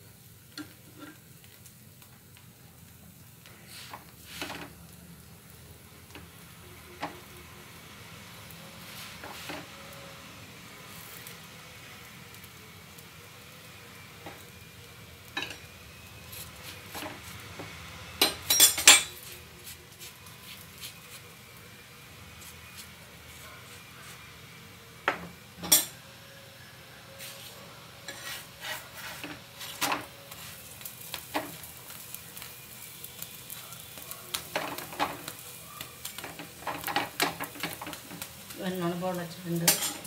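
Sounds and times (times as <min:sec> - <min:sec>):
faint sizzling on griddle: 0:00.0 - 0:40.0.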